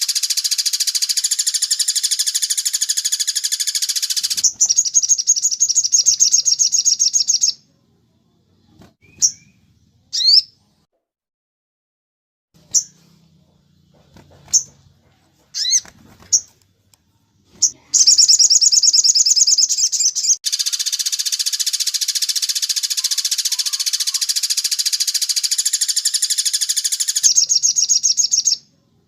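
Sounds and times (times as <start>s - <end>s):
bird trill turning to rattle: 0.0s - 7.2s, 14.0s - 16.6s, 17.6s - 28.4s
bird chirps: 0.0s - 7.8s, 8.6s - 10.6s, 12.6s - 16.6s, 17.6s - 28.8s.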